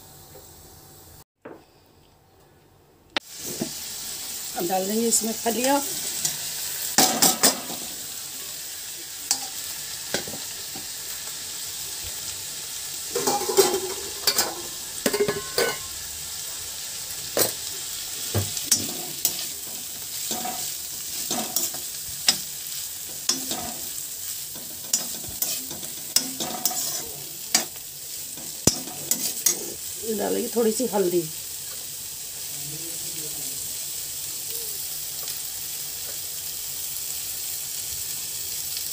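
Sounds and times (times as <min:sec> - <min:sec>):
beans sizzling in hot oil: 0:03.2 - 0:38.9
metal spatula scraping a pan: 0:18.6 - 0:22.5, 0:23.2 - 0:29.9.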